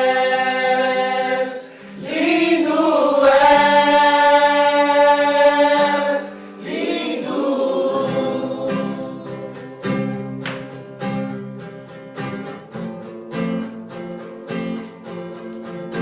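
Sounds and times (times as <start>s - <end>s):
person singing: 0.0s - 10.2s
acoustic guitar strumming chords: 0.0s - 16.0s.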